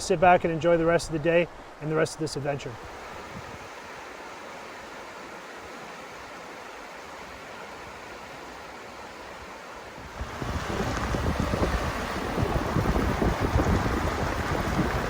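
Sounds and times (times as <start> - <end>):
river water rushing: 0.5 - 15.0
wind buffeting microphone: 3.0 - 3.7, 10.0 - 15.0.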